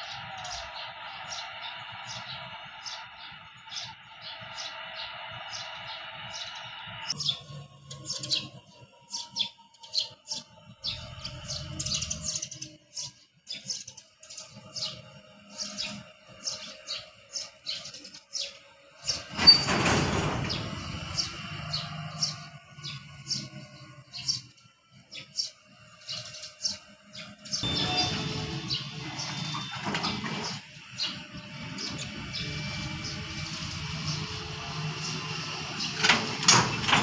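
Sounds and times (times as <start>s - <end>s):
loud rushing noise: 0.0s - 7.2s, 27.6s - 37.0s
diesel locomotive rumble: 0.0s - 9.0s, 19.0s - 24.2s, 27.0s - 37.0s
small birds chirping: 0.0s - 19.7s, 20.5s - 36.1s.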